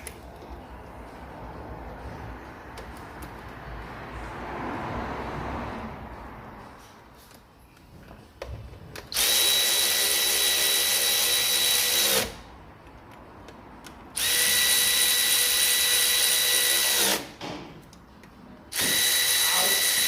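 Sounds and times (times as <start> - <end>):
power drill whining: 9.1 - 12.4, 14.2 - 17.2, 18.7 - 20.0.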